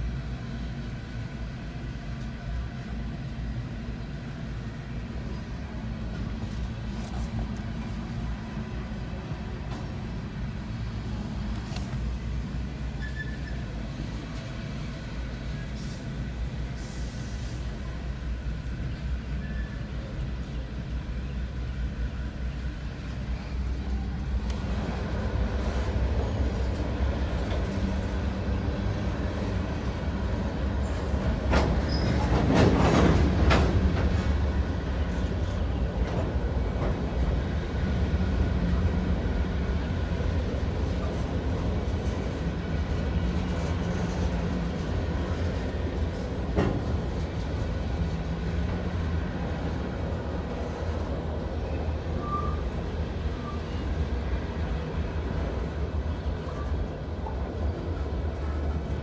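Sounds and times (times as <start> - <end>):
freight train wheels rumbling: 0.0 - 59.0
train clattering: 22.6 - 59.0.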